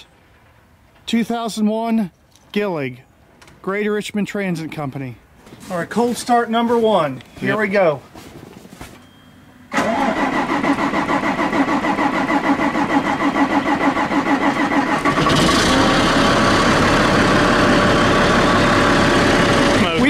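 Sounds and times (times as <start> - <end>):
diesel engine running: 9.7 - 20.0
starter cranking engine: 9.7 - 20.0.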